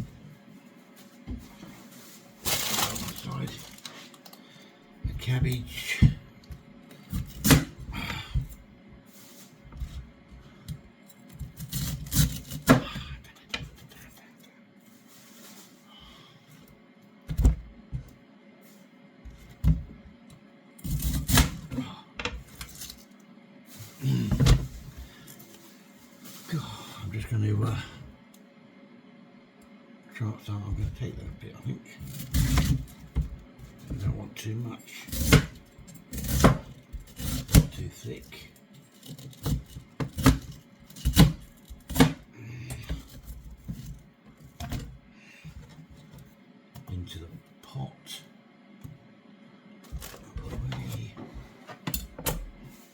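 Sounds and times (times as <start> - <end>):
rustling: 14.8 - 15.9
knife chopping cabbage on board: 35.1 - 37.7, 39.4 - 42.2.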